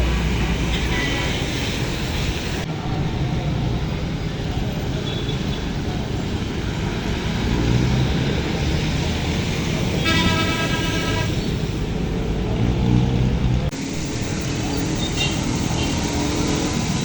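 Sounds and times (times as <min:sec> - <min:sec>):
traffic engines rumbling: 0:00.0 - 0:17.0
vehicle horn: 0:10.0 - 0:11.8.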